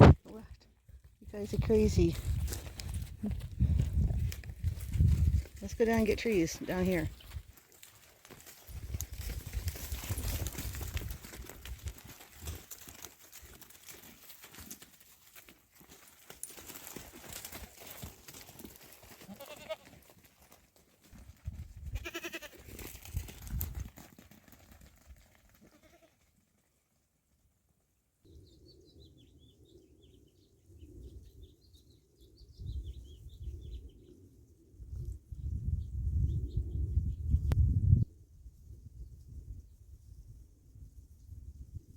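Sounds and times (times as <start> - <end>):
wind buffeting microphone: 1.4 - 7.4, 32.5 - 34.0, 34.8 - 41.9
goats bleating: 19.2 - 20.0, 22.0 - 22.7, 25.6 - 26.2.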